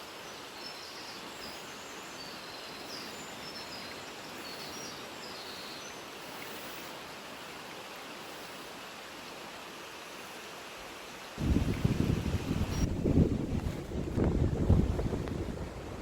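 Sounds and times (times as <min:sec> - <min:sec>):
wind buffeting microphone: 0:11.4 - 0:16.0.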